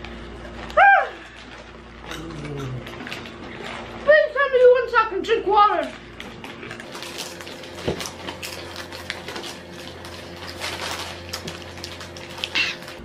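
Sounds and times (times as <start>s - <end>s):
crunching and chewing snacks: 0.0s - 13.0s.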